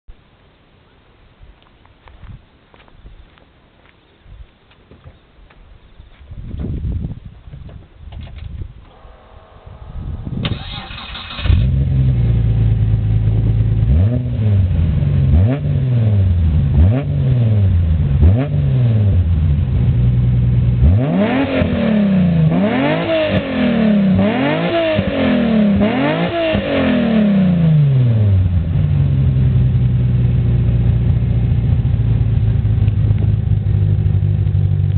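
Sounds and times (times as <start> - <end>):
car engine idling and revving: 8.9 - 34.9.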